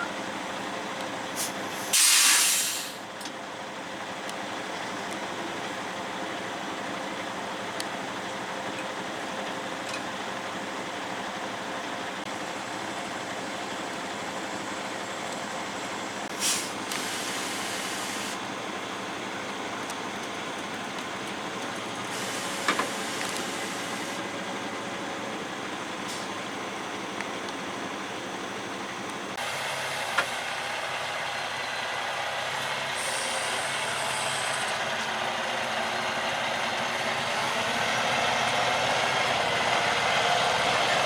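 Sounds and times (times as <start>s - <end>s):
short hiss: 1.4s - 3.0s, 16.3s - 18.4s, 22.1s - 24.2s
vehicle running: 3.4s - 41.0s.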